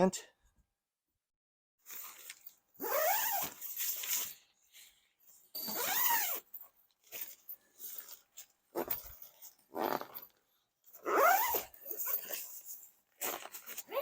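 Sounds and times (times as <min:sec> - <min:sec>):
tent fabric rustling: 0:01.8 - 0:06.4, 0:11.1 - 0:14.0
tent zipper being pulled: 0:01.9 - 0:04.4, 0:05.6 - 0:06.5, 0:08.8 - 0:10.3, 0:11.0 - 0:14.0.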